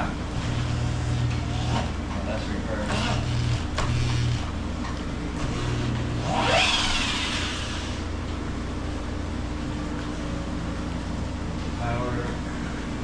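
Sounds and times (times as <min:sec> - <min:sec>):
steady low hum: 0:00.0 - 0:13.0
cordless drill motor whine: 0:02.9 - 0:04.5, 0:05.4 - 0:08.1.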